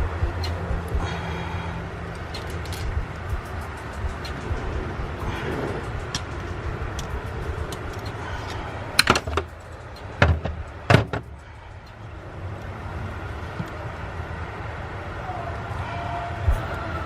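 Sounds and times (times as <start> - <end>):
steady low hum: 0.0 - 17.0
sharp knocks and clunks: 9.0 - 11.3.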